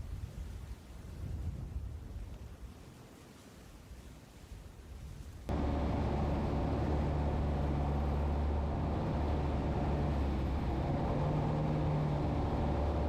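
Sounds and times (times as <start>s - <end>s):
engine running: 5.5s - 13.0s.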